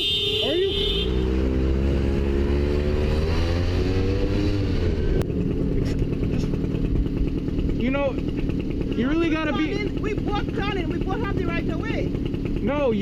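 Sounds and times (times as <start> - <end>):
motorcycle engine accelerating: 0.4 - 13.0.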